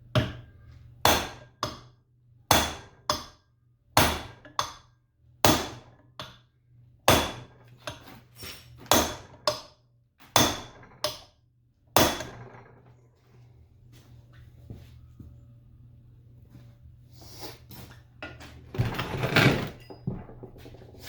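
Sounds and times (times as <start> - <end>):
hammer strikes on metal: 0.1 - 1.9, 2.5 - 3.4, 4.0 - 4.8, 5.4 - 6.4, 7.1 - 8.0, 8.9 - 9.7, 10.3 - 11.3, 12.0 - 12.5
steady low hum: 10.4 - 21.0.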